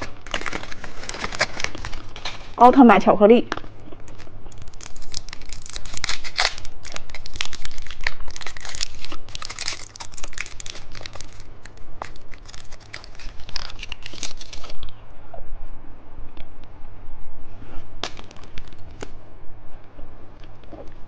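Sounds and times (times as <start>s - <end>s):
plastic wrapper tearing and crinkling: 0.0s - 2.6s, 3.5s - 14.9s, 18.0s - 19.1s.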